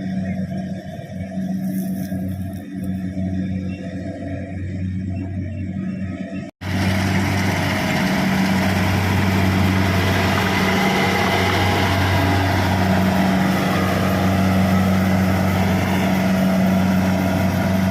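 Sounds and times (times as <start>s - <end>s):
combine harvester engine hum: 0.0s - 17.9s.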